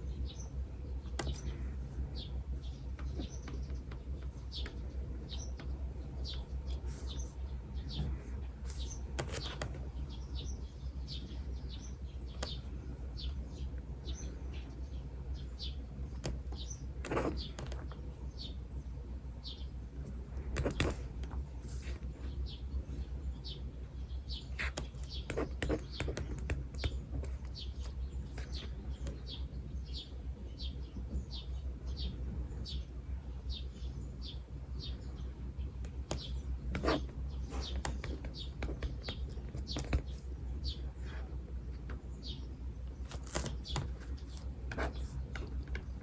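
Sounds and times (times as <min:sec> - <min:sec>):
small bird chirping: 0:00.0 - 0:18.7, 0:19.4 - 0:46.0
writing on paper: 0:01.2 - 0:02.0, 0:06.4 - 0:09.8, 0:16.1 - 0:17.9, 0:20.0 - 0:22.1, 0:24.5 - 0:28.8, 0:35.8 - 0:40.4, 0:43.1 - 0:46.0.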